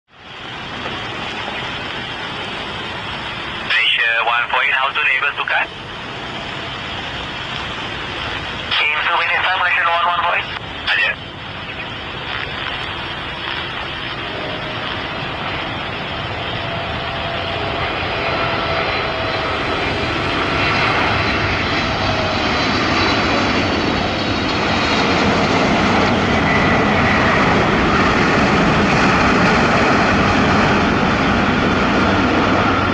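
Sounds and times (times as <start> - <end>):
jet engine noise: 0.1 - 32.9
high whine tones sliding in pitch: 10.4 - 20.1.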